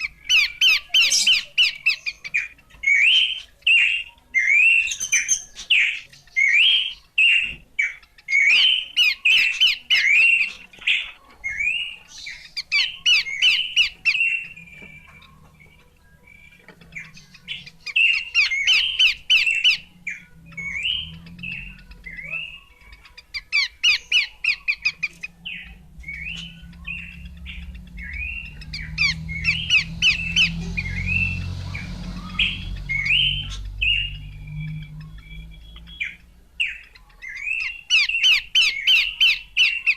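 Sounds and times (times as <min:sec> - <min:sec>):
bird whistling and trilling: 0:00.0 - 0:39.9
low rumble: 0:24.8 - 0:36.6.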